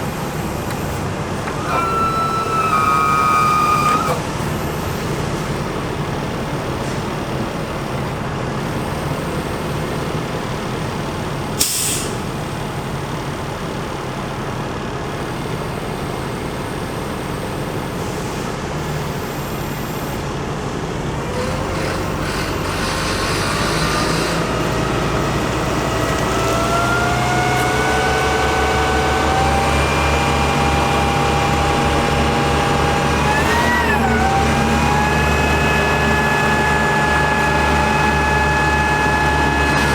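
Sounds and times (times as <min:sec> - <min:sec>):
diesel truck engine running: 0:00.0 - 0:39.9
air hiss: 0:11.6 - 0:12.2.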